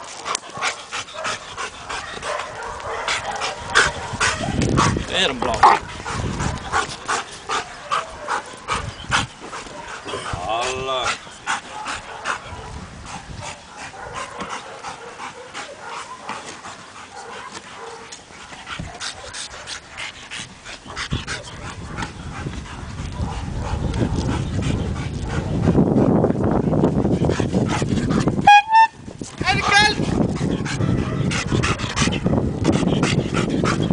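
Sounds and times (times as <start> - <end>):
dog panting: 0.0 - 28.4, 29.3 - 33.9.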